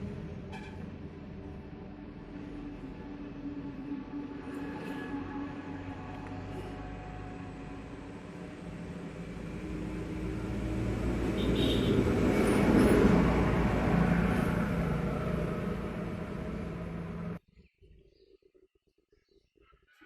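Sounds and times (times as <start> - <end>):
vehicle passing close by: 4.3 - 17.4.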